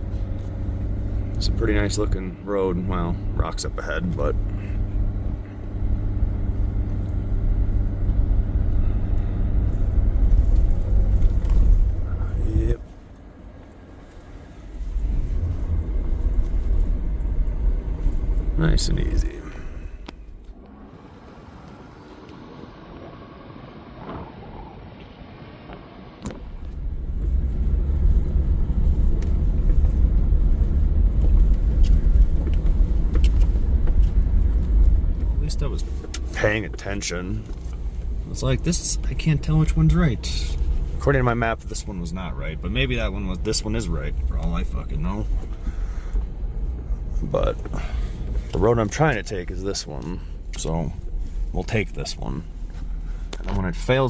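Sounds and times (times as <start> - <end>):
pickup engine rumble: 0.0 - 54.0
tyres rumbling on gravel: 14.6 - 22.3, 26.4 - 54.0.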